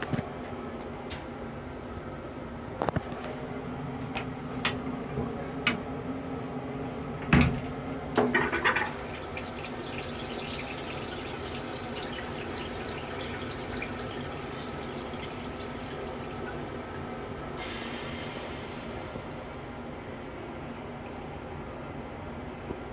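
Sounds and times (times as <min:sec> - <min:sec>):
water running from faucet: 0:08.2 - 0:17.9.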